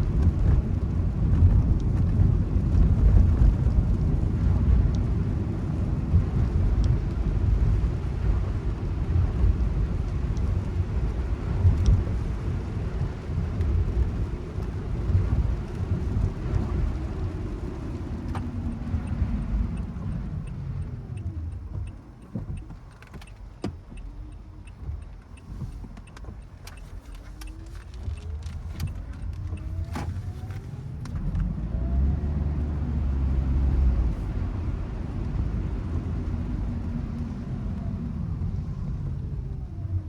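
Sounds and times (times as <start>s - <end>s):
car engine and road rumble: 0.0s - 40.0s.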